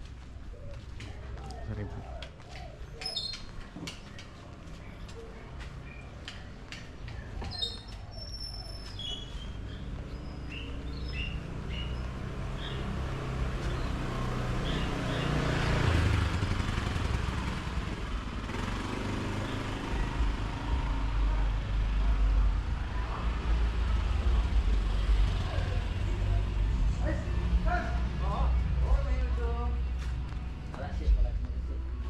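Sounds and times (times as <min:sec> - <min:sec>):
low traffic rumble: 0:00.0 - 0:32.0
vehicle passing close by: 0:09.5 - 0:30.7.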